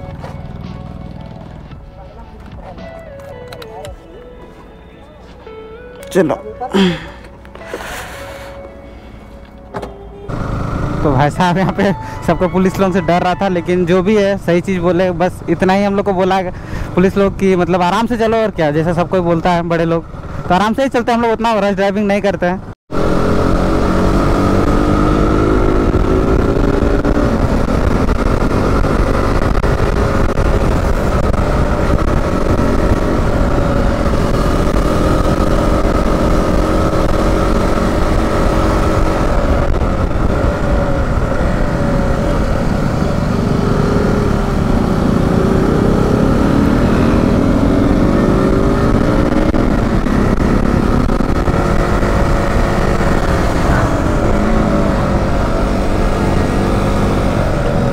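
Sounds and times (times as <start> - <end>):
motorcycle engine running: 0.0 - 3.4, 10.2 - 14.4, 22.9 - 57.9.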